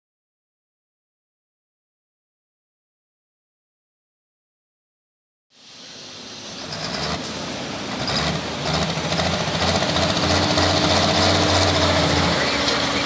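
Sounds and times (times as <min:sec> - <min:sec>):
tractor engine running hard: 0:06.6 - 0:13.0.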